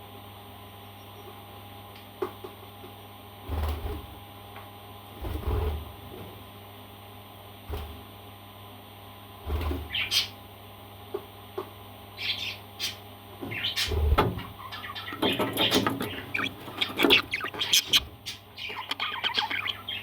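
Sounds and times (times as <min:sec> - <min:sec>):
parrot chirping: 0:14.5 - 0:20.0.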